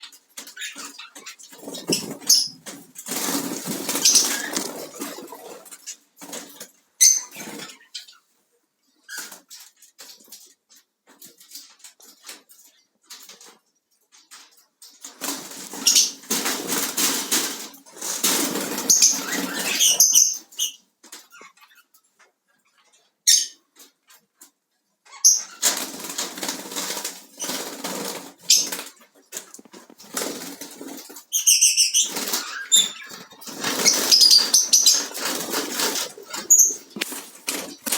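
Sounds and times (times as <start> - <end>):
parrot chirping: 0.6 - 2.7, 3.4 - 6.0, 7.0 - 8.2, 31.3 - 37.9
parrot flapping wings: 1.6 - 6.6, 33.4 - 37.9.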